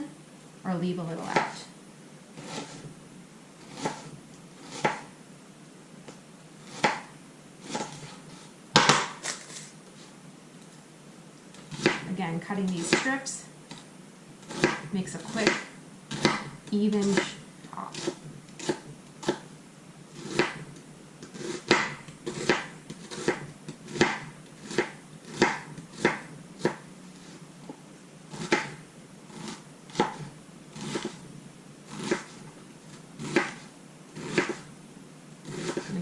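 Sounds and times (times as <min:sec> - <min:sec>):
knife chopping on cutting board: 0:03.7 - 0:04.1, 0:04.7 - 0:05.1, 0:06.7 - 0:07.1, 0:08.8 - 0:09.2, 0:11.7 - 0:12.1, 0:14.5 - 0:19.5, 0:20.2 - 0:20.6, 0:21.3 - 0:26.8, 0:28.4 - 0:28.8, 0:29.4 - 0:31.2, 0:31.9 - 0:32.4, 0:33.2 - 0:33.6, 0:34.2 - 0:34.7, 0:35.5 - 0:36.0.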